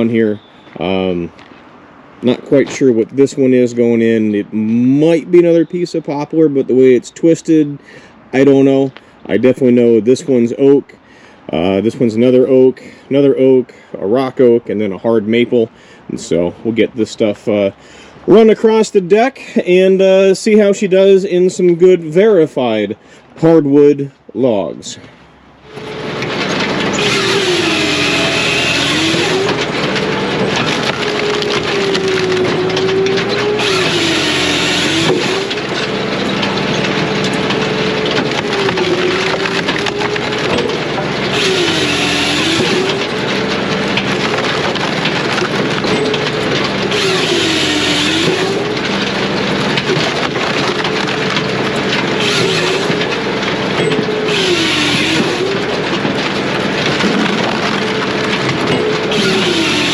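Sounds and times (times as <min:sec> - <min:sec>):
diesel engine running: 0:25.4 - 0:59.9
saw cutting through log: 0:25.7 - 0:59.9.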